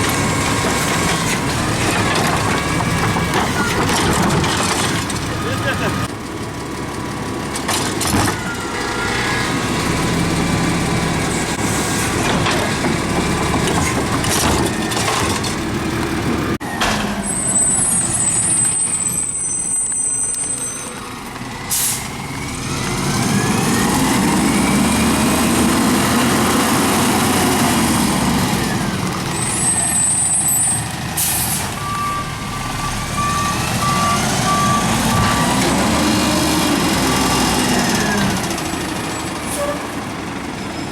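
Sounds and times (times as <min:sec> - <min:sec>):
diesel engine revving: 0:00.0 - 0:40.9
air brake hisses: 0:21.7 - 0:22.1, 0:31.2 - 0:31.7.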